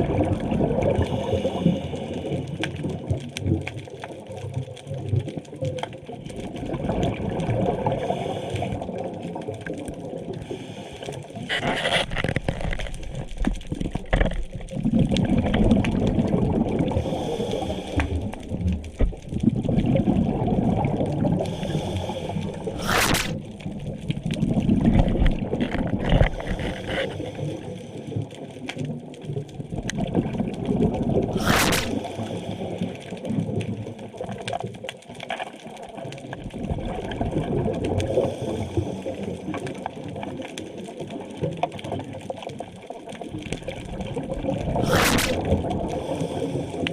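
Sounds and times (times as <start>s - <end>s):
underwater breath bubbling: 0.0s - 3.1s, 6.2s - 28.6s, 30.0s - 33.8s, 37.2s - 39.9s, 44.4s - 46.9s.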